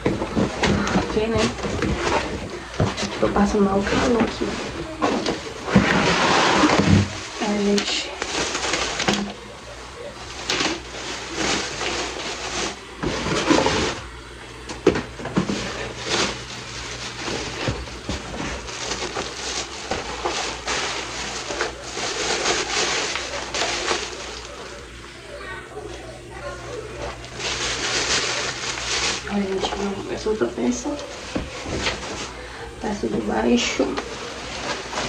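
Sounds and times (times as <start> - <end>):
cardboard scraping: 0.0 - 9.3, 10.3 - 14.1, 34.0 - 35.0
packaging rustling: 0.0 - 14.1, 14.7 - 25.0, 26.9 - 32.7, 33.6 - 35.0.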